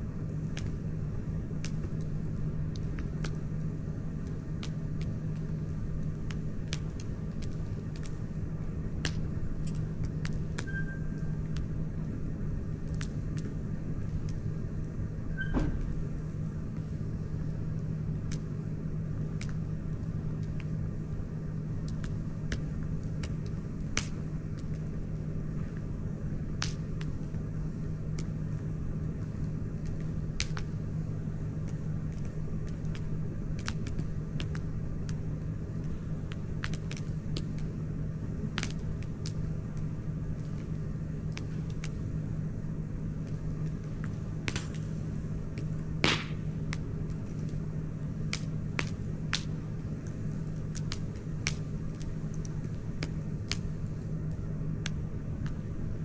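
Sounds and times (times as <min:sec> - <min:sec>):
campfire crackling and popping: 0:00.0 - 0:15.0, 0:15.9 - 0:56.0
low rumble: 0:14.0 - 0:17.8.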